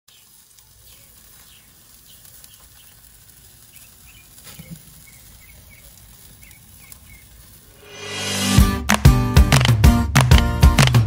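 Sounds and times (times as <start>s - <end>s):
small birds chirping: 0.1s - 7.7s.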